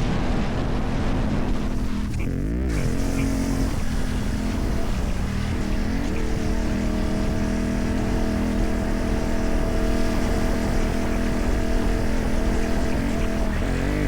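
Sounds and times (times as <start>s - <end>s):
motorcycle engine at steady revs: 0.0s - 14.0s.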